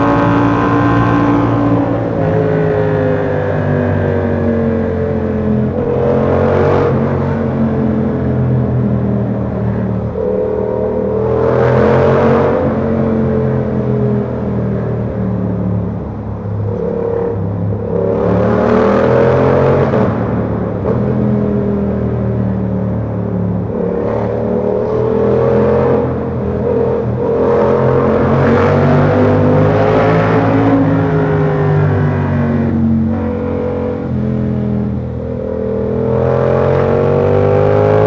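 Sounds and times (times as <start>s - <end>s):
motorcycle engine accelerating: 0.0s - 38.0s.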